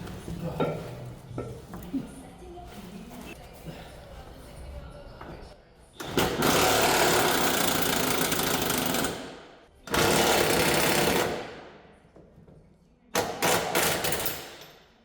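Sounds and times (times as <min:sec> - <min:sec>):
impact wrench hammering: 0:13.2 - 0:14.8.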